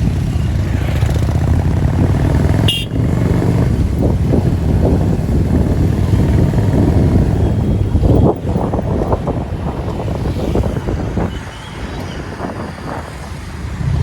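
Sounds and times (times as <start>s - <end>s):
motorcycle engine: 0.0s - 10.5s
road and wind noise: 0.0s - 14.0s.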